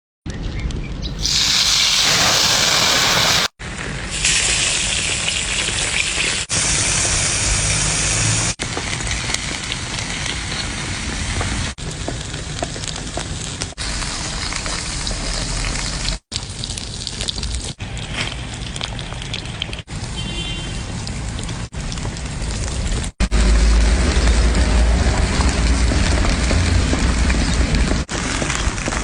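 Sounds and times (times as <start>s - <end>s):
seafood sizzling and crackling: 1.0s - 3.5s, 4.1s - 7.9s, 12.3s - 19.8s.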